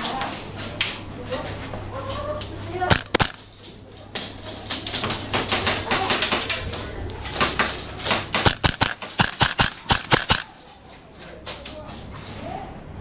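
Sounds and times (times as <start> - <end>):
airsoft guns firing: 2.9 - 3.5, 7.4 - 10.6.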